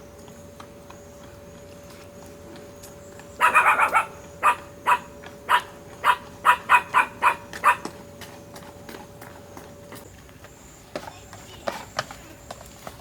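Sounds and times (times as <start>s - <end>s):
animal calling: 3.3s - 7.9s.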